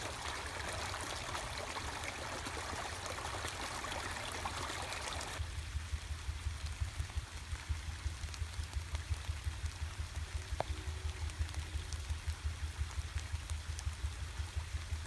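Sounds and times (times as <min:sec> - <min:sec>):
creek water rushing: 0:00.0 - 0:05.4.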